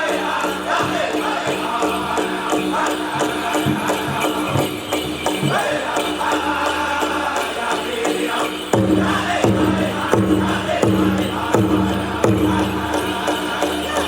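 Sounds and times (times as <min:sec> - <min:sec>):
group singing in high voices: 0:00.0 - 0:14.0
heavy drum beats: 0:00.0 - 0:14.0.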